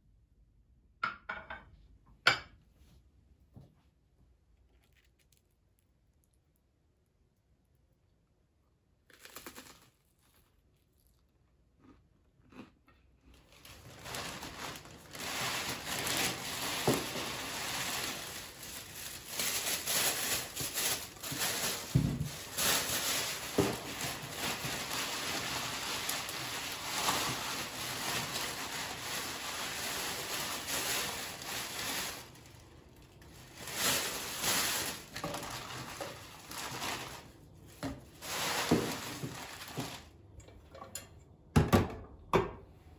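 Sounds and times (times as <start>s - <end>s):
packaging crinkling and rustling: 13.3s - 40.4s.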